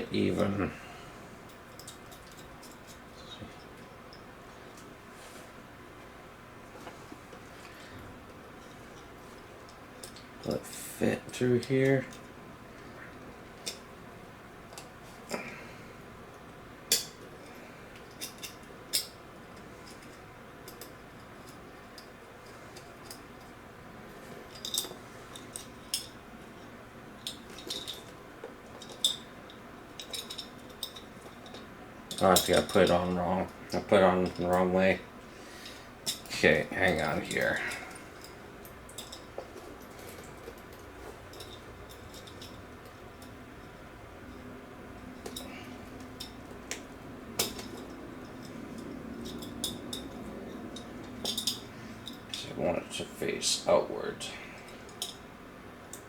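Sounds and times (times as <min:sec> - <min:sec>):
metallic keychain clinks: 0:47.4 - 0:52.4.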